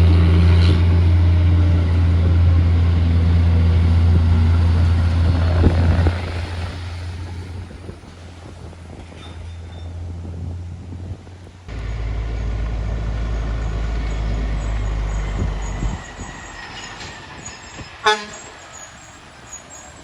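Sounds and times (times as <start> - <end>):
heavy truck engine droning: 0.0 - 20.0
truck horn toot: 18.0 - 18.6.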